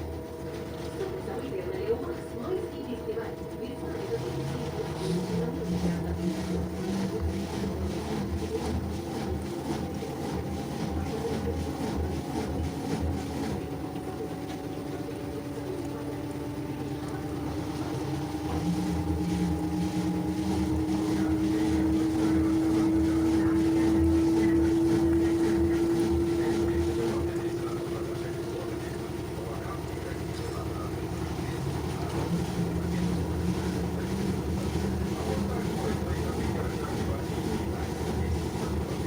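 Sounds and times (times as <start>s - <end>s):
washing machine drum motor whine: 0.0s - 39.0s.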